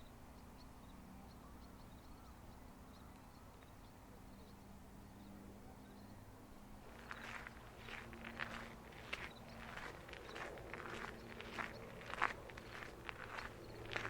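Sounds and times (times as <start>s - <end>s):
distant bird chirps: 0.0s - 14.0s.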